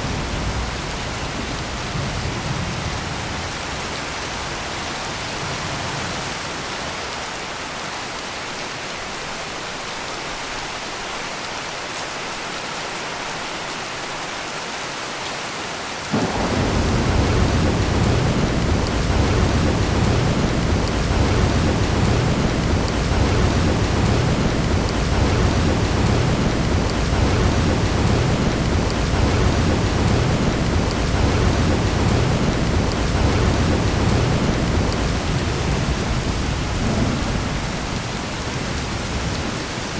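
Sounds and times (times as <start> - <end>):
deep rumble of thunder: 0.0 - 6.4, 16.1 - 39.9
heavy rain: 0.0 - 39.9.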